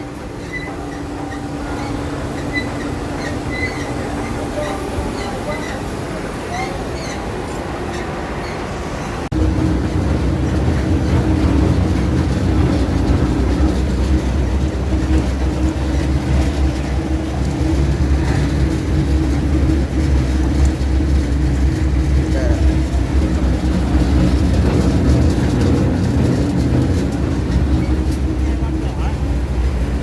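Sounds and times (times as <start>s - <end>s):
industrial shredder droning: 9.3s - 30.0s.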